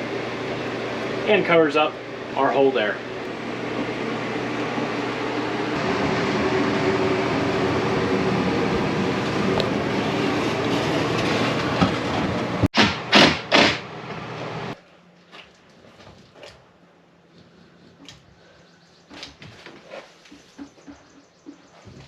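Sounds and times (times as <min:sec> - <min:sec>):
air conditioner running: 0:00.0 - 0:19.4.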